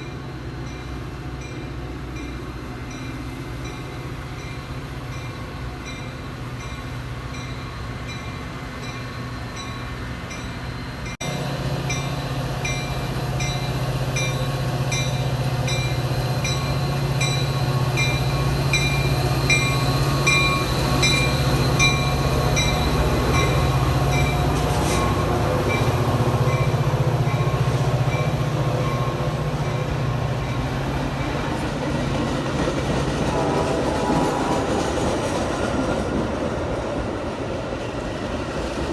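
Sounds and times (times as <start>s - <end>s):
train rumbling past: 0.0s - 38.9s
crossing bell dinging: 0.6s - 31.5s.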